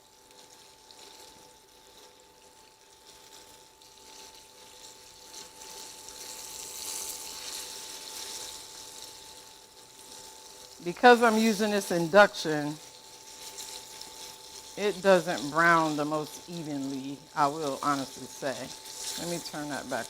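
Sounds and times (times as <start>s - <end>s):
chicken sizzling in a pan: 0.0s - 20.0s
steady faint whine: 10.8s - 20.0s.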